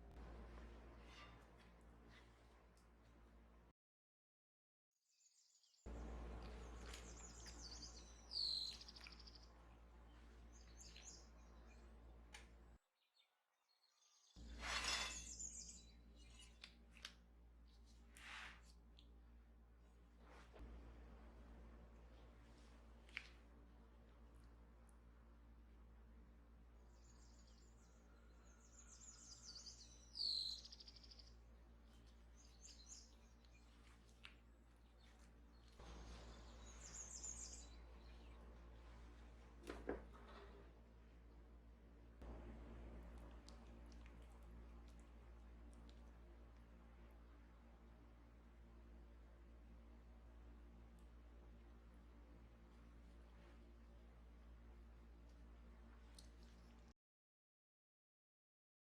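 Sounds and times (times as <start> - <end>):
steady low hum: 0.0 - 3.7, 5.9 - 12.8, 14.4 - 56.9
faint bird chirps: 5.2 - 12.3, 26.8 - 38.9
brief scraping sounds: 14.4 - 15.8, 18.1 - 18.8.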